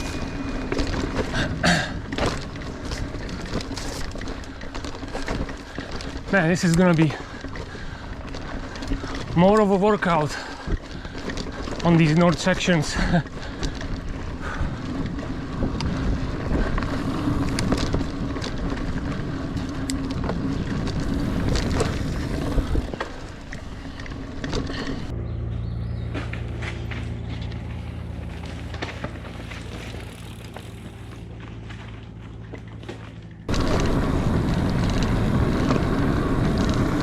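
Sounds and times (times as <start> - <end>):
bike rattling: 0.0 - 37.0
bike tyres rolling on dirt: 0.0 - 37.0.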